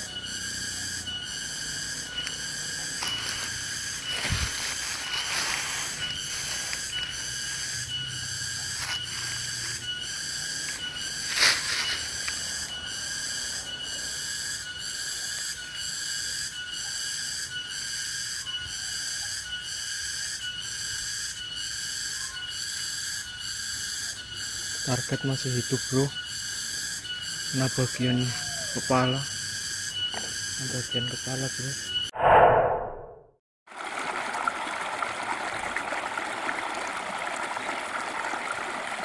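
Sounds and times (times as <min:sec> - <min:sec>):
insect chorus pulsing: 0:00.0 - 0:32.1
dry leaves crunching: 0:02.2 - 0:07.9, 0:08.5 - 0:09.9, 0:10.5 - 0:12.6.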